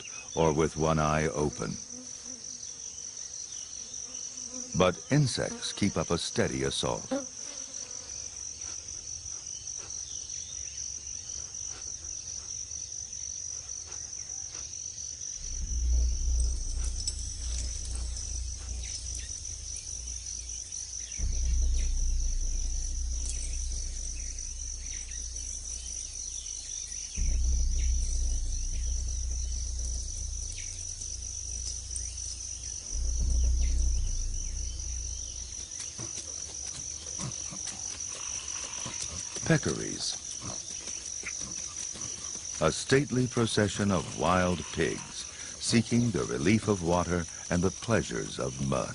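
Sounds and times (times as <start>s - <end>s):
insect chorus buzzing: 0.0s - 48.9s
low rumbles: 15.4s - 37.4s.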